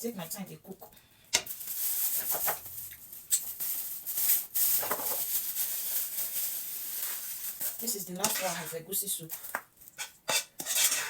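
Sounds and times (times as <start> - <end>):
plastic bag rustling: 1.4 - 10.0.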